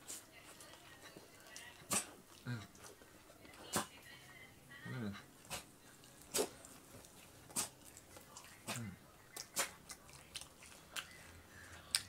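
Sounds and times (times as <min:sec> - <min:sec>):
person chewing with lip smacks: 0:05.5 - 0:12.0.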